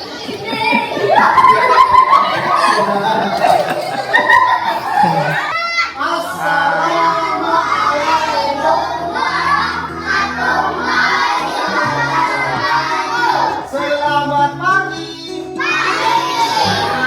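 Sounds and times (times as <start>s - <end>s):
children singing together: 0.0s - 17.0s.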